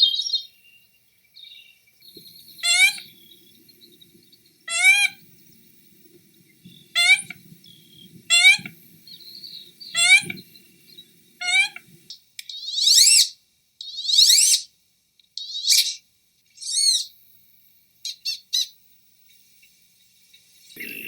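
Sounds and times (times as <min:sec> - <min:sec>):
bird calls sweeping up and down: 0:02.2 - 0:03.8, 0:06.8 - 0:11.9, 0:12.5 - 0:14.7, 0:15.4 - 0:16.0, 0:16.6 - 0:17.1.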